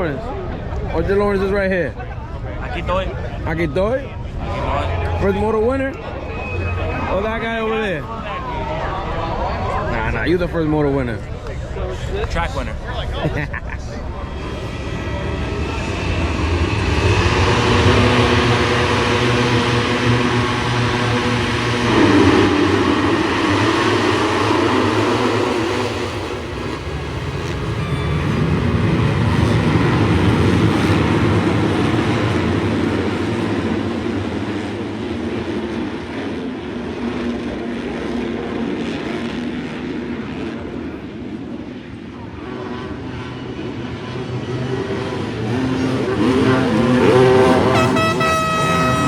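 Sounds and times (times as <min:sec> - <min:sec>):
dirt bike engines running: 0:14.2 - 0:37.4, 0:43.3 - 0:49.0.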